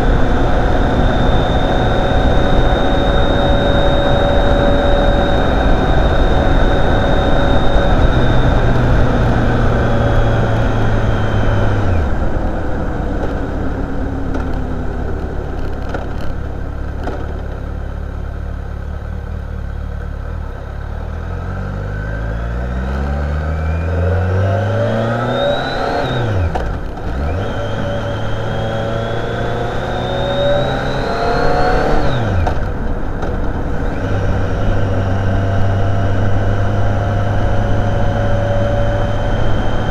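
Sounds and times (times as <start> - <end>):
motorcycle engine revving: 0.0 - 39.9
rush of riding noise: 0.0 - 39.9.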